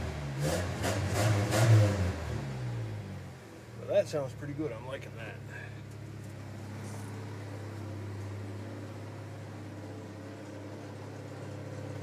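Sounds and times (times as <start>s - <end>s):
car engine idling: 3.2s - 12.0s.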